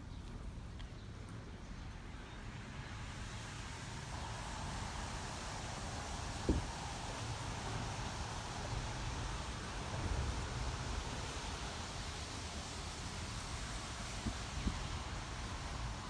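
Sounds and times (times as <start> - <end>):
outdoor hiss: 0.0 - 16.0
wind buffeting microphone: 4.2 - 16.0.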